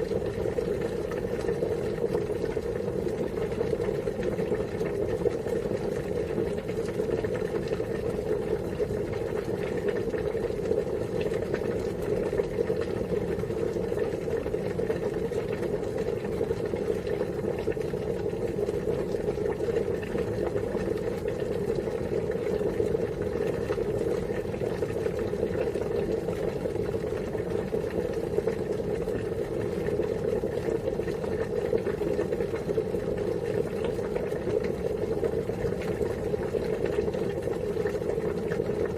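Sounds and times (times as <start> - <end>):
water boiling: 0.0 - 38.9.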